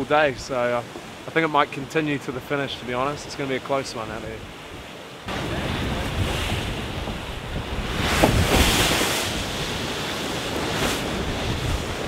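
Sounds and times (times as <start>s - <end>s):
water rushing along hull: 0.0s - 12.0s
wind buffeting microphone: 4.4s - 12.0s.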